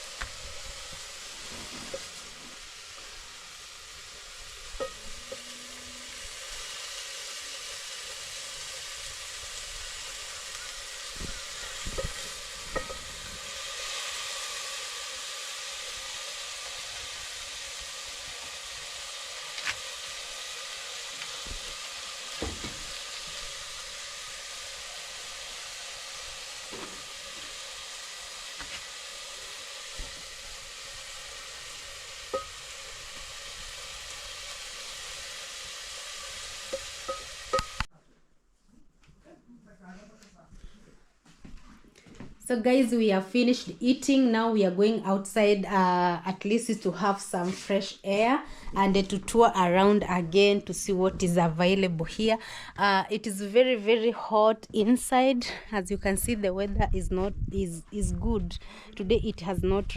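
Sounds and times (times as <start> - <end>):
fish sizzling in a pan: 0.0 - 37.9.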